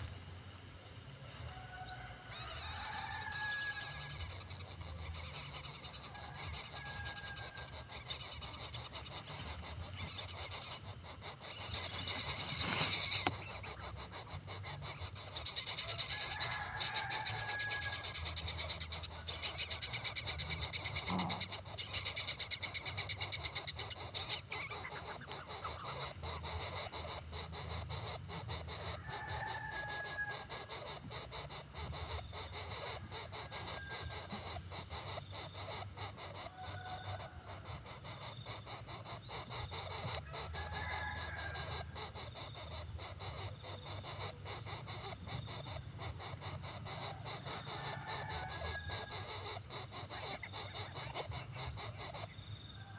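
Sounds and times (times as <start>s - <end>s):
insects trilling: 0.0s - 52.9s
fast-pulsing insect buzz: 2.5s - 52.4s.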